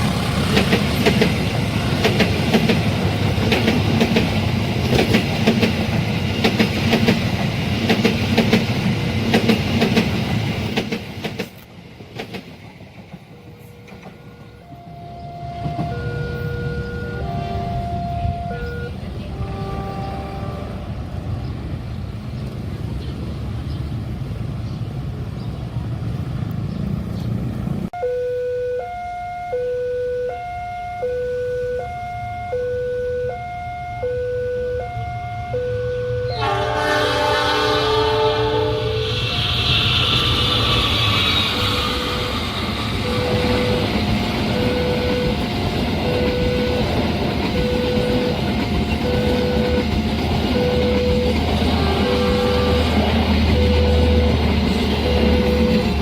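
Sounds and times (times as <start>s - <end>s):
train rumbling past: 0.0s - 28.0s, 34.0s - 56.0s
two-tone hi-lo siren: 13.8s - 20.7s, 28.0s - 56.0s.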